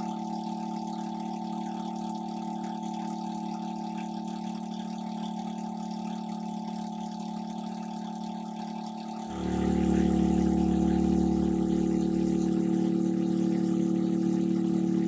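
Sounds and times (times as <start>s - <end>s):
engine running: 9.3s - 15.0s.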